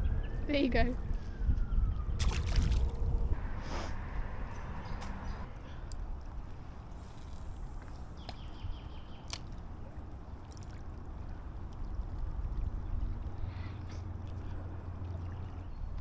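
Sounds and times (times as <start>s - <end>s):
low rumble: 0.0s - 9.0s
water sloshing and lapping: 0.0s - 16.0s.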